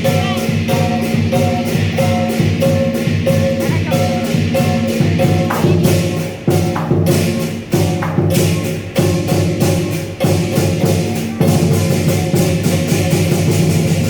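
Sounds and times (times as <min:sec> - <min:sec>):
gong ringing: 0:00.0 - 0:07.2
cymbals clashing: 0:00.0 - 0:14.0
drum beating: 0:00.0 - 0:14.0.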